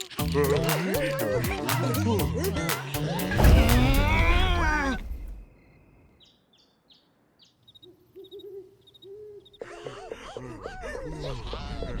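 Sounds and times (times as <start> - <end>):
owl hooting: 7.8 - 10.0.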